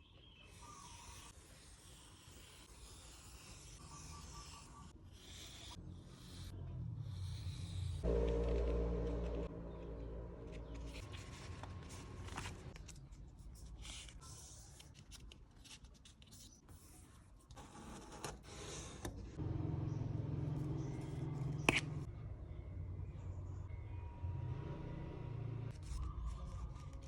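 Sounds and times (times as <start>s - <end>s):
low steady hum: 6.6s - 12.7s
paper rustling: 10.5s - 16.5s.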